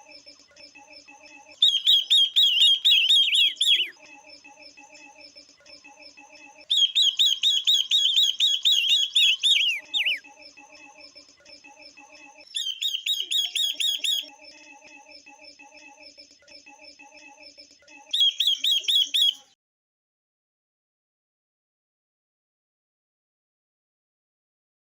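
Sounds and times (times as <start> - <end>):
bird chatter: 1.6 - 3.9, 6.7 - 10.2, 12.6 - 14.3, 18.2 - 19.4
birds chirping rapidly: 1.6 - 4.0, 6.7 - 10.2, 12.5 - 14.3, 18.2 - 19.5.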